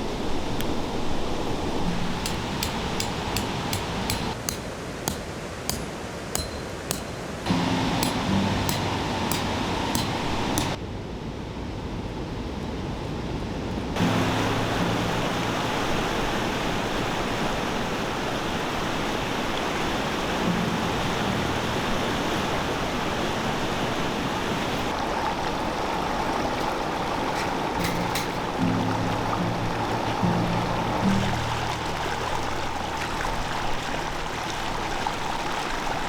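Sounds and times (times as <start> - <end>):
stream water rushing: 0.0 - 10.8, 14.0 - 36.0.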